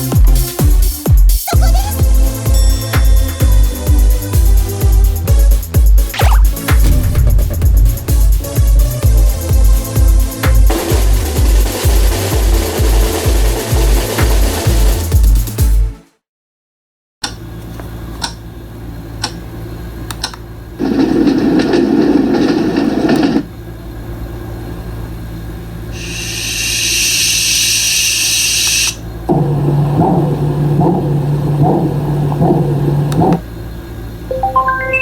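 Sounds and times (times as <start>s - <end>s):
low pulsing tone: 6.3s - 11.3s
deep rushing noise: 6.4s - 13.5s
low hum with faint clicks: 17.2s - 18.5s, 19.2s - 20.5s
high hiss: 26.0s - 29.0s.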